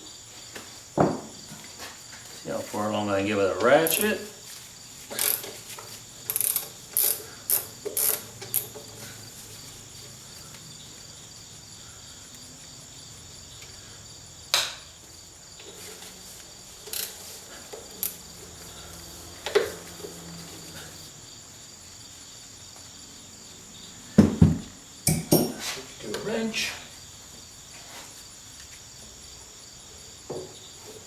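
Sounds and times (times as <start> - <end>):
socket ratchet clicking: 5.2 - 5.5, 6.3 - 8.8, 16.9 - 17.2, 18.0 - 18.2.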